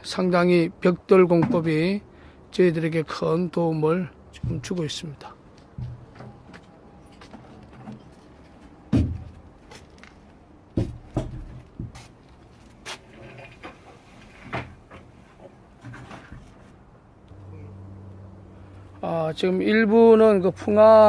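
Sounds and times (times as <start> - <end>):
hard objects knocking: 5.7 - 6.6, 10.8 - 12.0.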